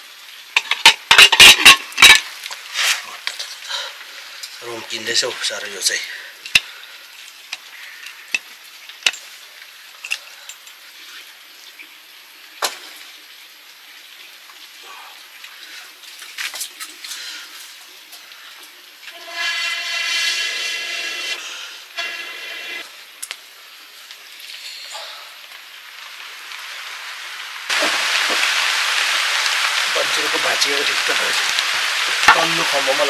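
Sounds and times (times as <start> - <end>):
food sizzling in a pan: 0.0 - 3.3, 19.0 - 33.0.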